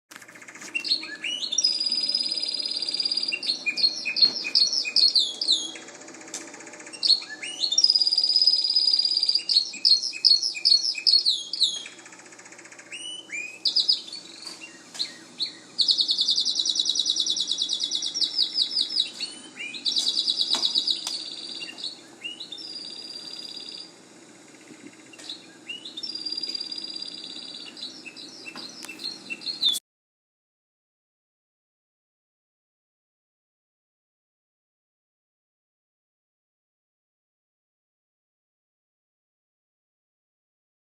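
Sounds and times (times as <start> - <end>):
songbird singing: 0.3 - 6.2, 6.8 - 29.8.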